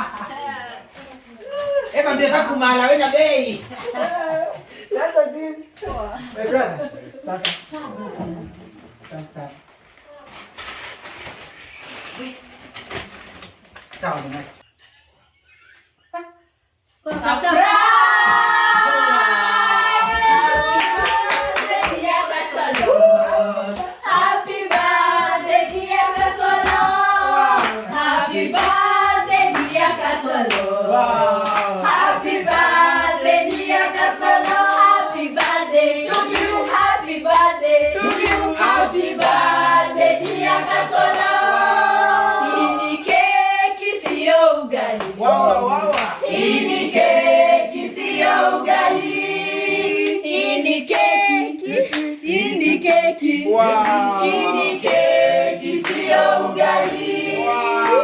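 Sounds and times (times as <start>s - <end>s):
group of people singing: 17.0s - 58.0s
hand clapping: 35.4s - 39.5s, 54.8s - 55.2s.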